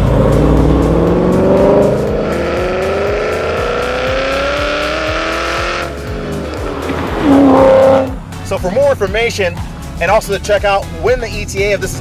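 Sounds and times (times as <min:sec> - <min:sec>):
car engine accelerating hard: 0:00.0 - 0:08.6.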